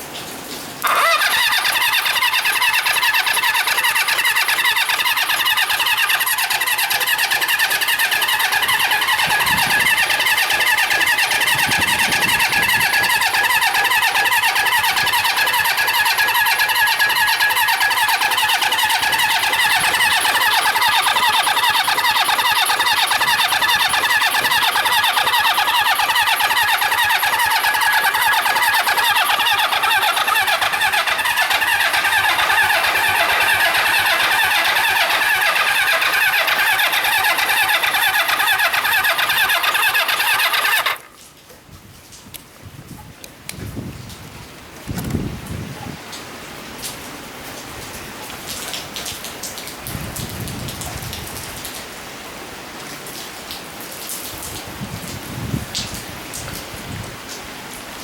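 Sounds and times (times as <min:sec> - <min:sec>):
electric starter cranking engine: 0:00.8 - 0:41.2, 0:44.8 - 0:45.4.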